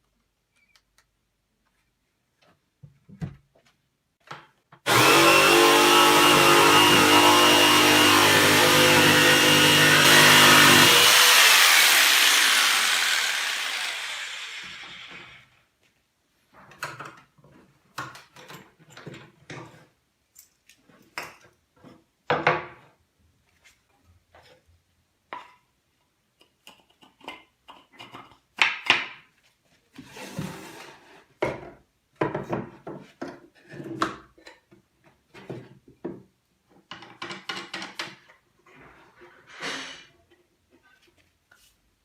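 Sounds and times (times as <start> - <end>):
wooden parts knocking and clattering: 35.3 - 38.3.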